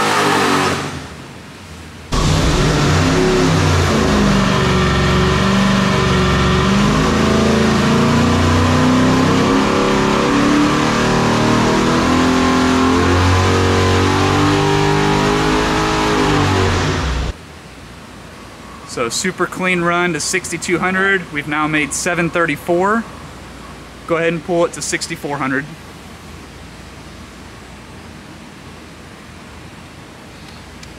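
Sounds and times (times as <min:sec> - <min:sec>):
engine at full throttle: 0:00.0 - 0:01.3, 0:02.1 - 0:17.4.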